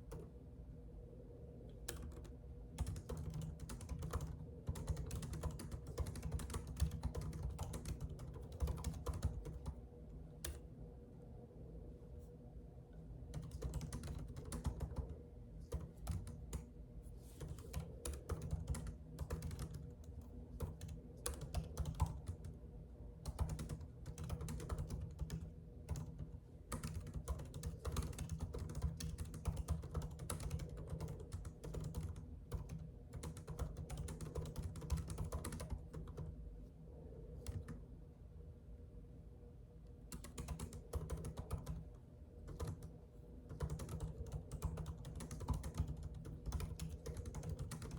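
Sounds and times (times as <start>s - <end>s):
steady low hum: 0.0s - 47.9s
keyboard typing: 1.8s - 9.8s, 13.3s - 16.7s, 17.4s - 22.6s, 23.2s - 36.4s, 37.4s - 37.8s, 40.1s - 47.9s.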